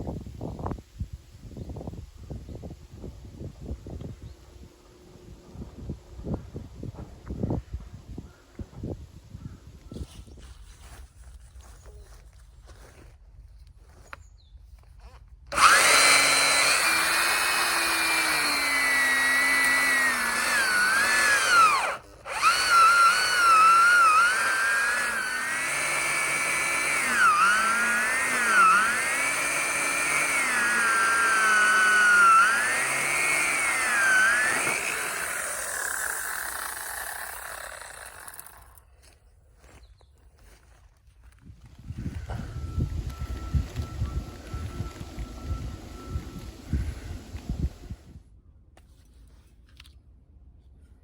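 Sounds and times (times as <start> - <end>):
chainsaw engine revving: 15.5 - 38.8.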